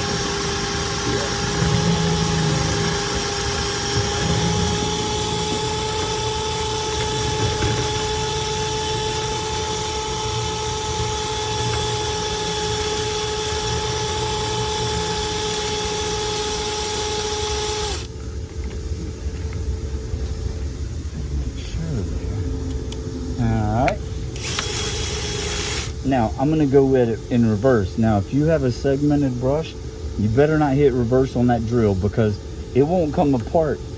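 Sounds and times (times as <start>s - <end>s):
power drill motor whine: 0.0s - 18.8s, 23.8s - 26.6s
low rumble: 18.0s - 26.4s.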